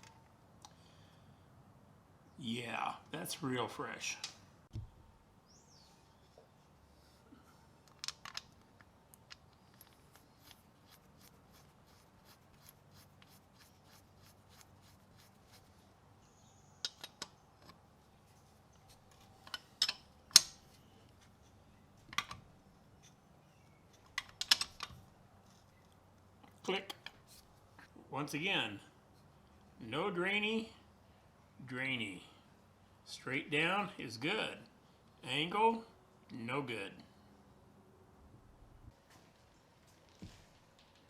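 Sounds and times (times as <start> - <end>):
metallic clicks of tools: 16.8 - 17.8, 19.4 - 20.6, 24.0 - 25.0.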